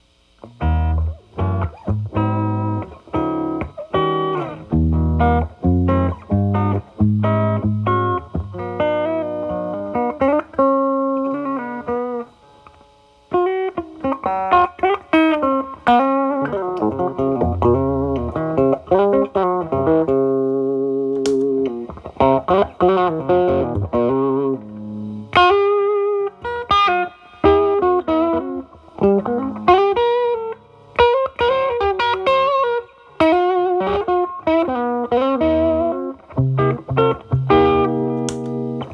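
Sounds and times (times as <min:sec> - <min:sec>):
overdriven electric guitar blues: 0:00.4 - 0:38.9
guitar pedal click: 0:21.1 - 0:21.9, 0:37.4 - 0:38.9.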